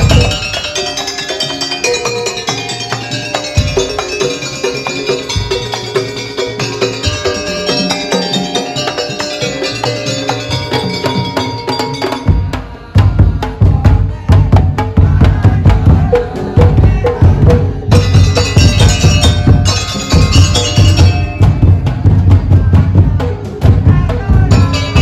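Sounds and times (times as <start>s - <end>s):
deep drum pulse: 0.0s - 0.6s, 12.3s - 25.0s
wooden slit drums striking: 0.0s - 25.0s.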